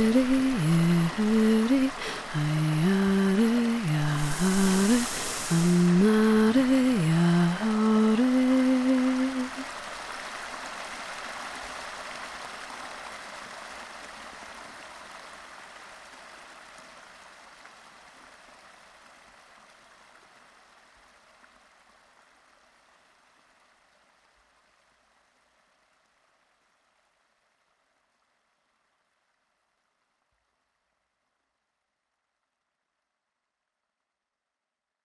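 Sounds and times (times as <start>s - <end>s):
stream water rushing: 0.0s - 14.8s.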